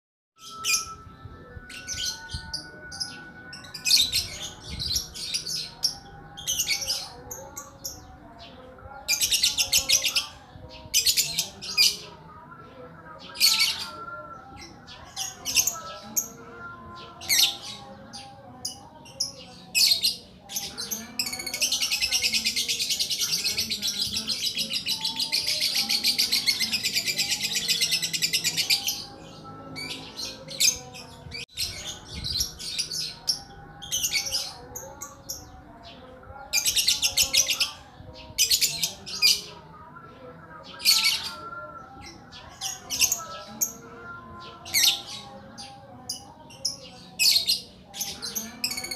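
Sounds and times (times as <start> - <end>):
songbird chirping and whistling: 0.4 - 8.6, 19.8 - 35.6.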